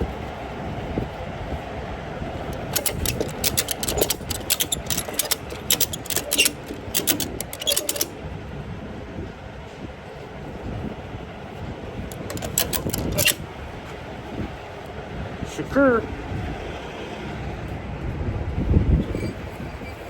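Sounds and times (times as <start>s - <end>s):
sharp clicks: 2.5s - 8.1s, 12.1s - 13.4s.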